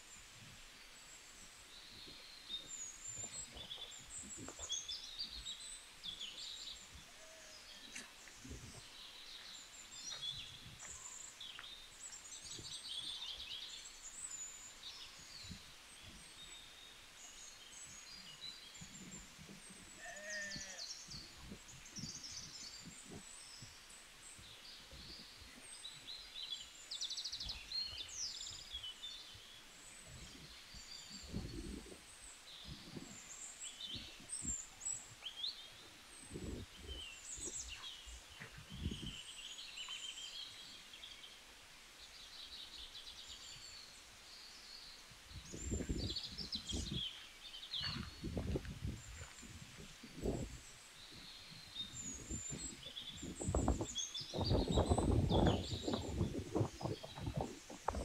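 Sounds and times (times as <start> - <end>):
small birds chirping: 0.0 - 58.0
low animal call: 20.0 - 20.9.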